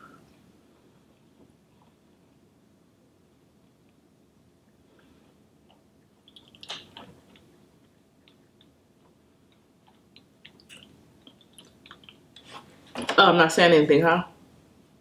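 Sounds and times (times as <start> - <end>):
faint chewing with mouth closed: 5.0 - 12.8.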